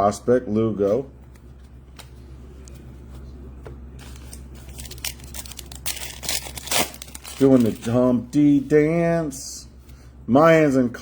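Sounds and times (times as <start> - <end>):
cards and foil wrappers rustling: 4.0 - 8.6.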